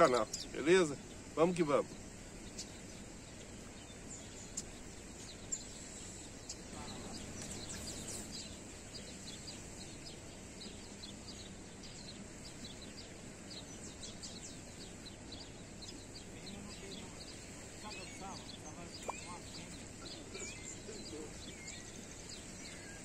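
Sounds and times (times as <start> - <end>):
outdoor background hiss: 0.0 - 23.0
small birds chirping: 0.0 - 23.0.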